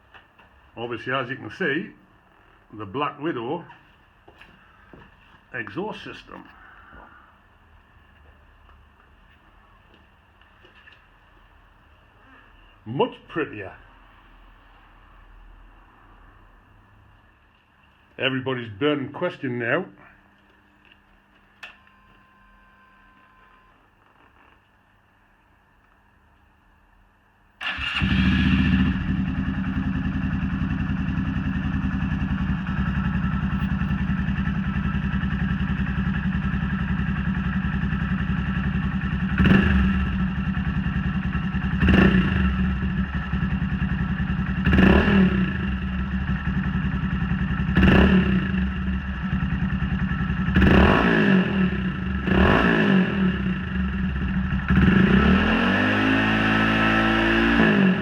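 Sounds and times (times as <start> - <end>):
motorcycle engine idling and revving: 27.6 - 58.0.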